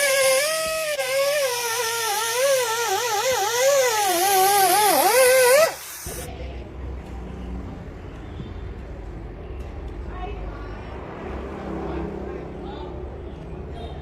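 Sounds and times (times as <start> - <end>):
power tool motor whine: 0.0 - 6.3
hissing noise: 1.0 - 6.3.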